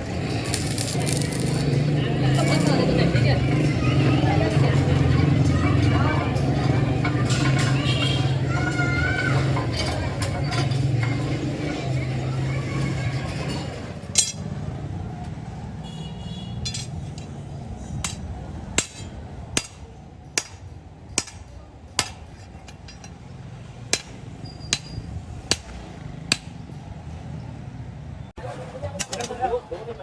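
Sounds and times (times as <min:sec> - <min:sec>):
low workshop rumble: 0:00.0 - 0:04.0
hammer striking metal: 0:20.4 - 0:22.2, 0:23.9 - 0:25.7.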